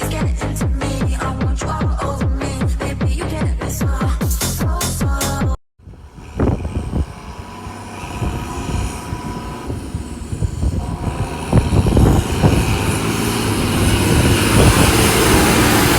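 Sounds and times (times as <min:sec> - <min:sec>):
tractor engine running: 0:05.8 - 0:15.9.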